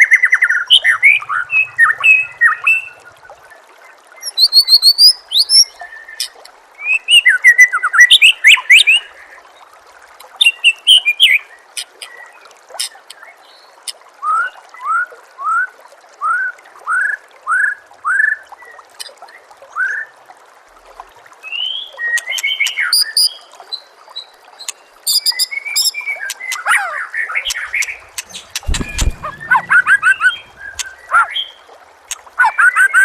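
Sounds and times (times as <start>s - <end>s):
bird singing: 0.0s - 3.0s, 25.1s - 31.6s
trickling water: 0.0s - 33.0s
low thud: 27.7s - 31.1s.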